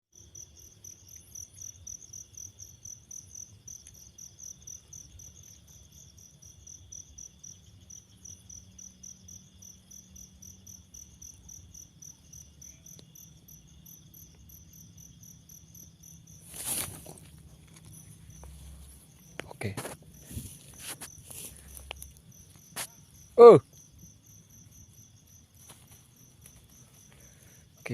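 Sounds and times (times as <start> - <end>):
night insects chirping: 0.2 - 27.9
loud rustle: 16.4 - 17.4.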